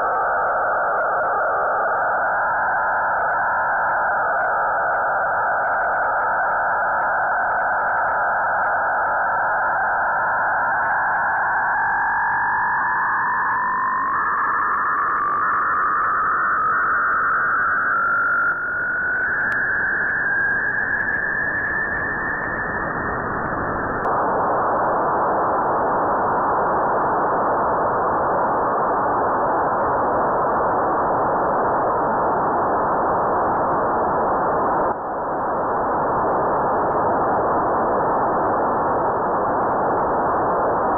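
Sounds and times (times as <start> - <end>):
faint rising whistle tones: 9.0 - 24.1.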